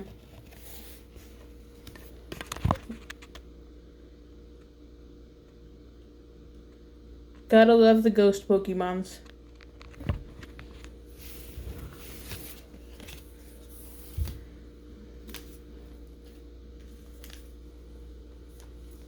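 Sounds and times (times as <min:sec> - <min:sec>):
low electrical hum: 0:00.0 - 0:19.0
trading cards rustling: 0:09.9 - 0:14.4, 0:15.2 - 0:17.7.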